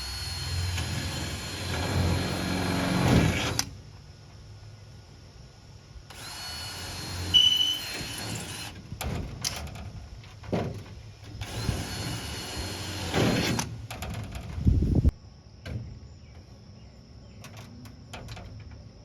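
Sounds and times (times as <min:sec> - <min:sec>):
power drill running: 0:00.0 - 0:03.7, 0:06.1 - 0:08.8, 0:11.4 - 0:13.8.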